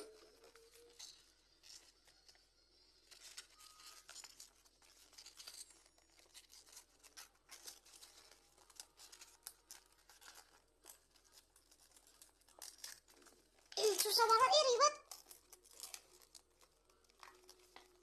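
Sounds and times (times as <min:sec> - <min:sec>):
packing tape and paper crinkling: 0:00.0 - 0:18.0.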